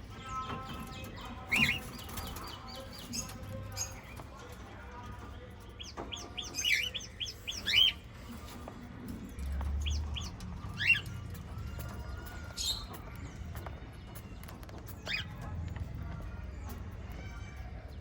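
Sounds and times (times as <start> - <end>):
parrots chirping: 5.8 - 8.4, 9.8 - 13.0.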